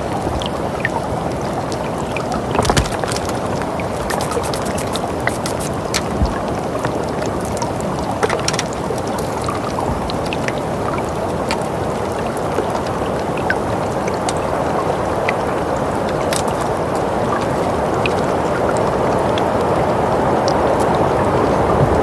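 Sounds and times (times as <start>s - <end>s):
small crackles and clicks: 0.4s - 19.5s.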